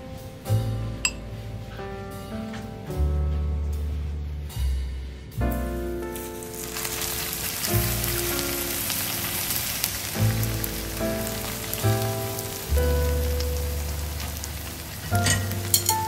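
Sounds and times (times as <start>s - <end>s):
background music: 0.0s - 16.0s
food sizzling in hot oil: 6.4s - 16.0s.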